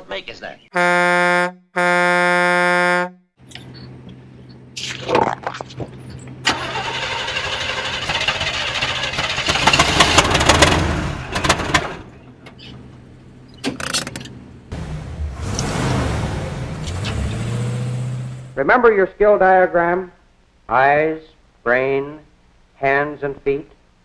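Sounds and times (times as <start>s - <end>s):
car horn blast: 0.8s - 3.3s
vehicle engine starting and running: 3.4s - 18.6s.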